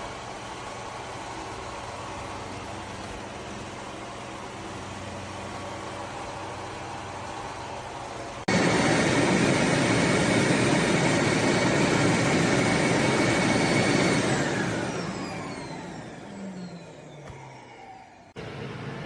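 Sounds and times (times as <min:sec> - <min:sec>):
robot vacuum motor whining: 0:08.5 - 0:18.3.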